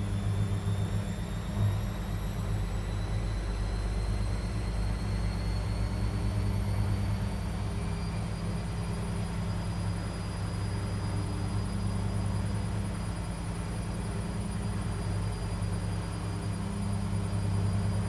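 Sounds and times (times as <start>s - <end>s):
faint high whine: 0.0s - 18.0s.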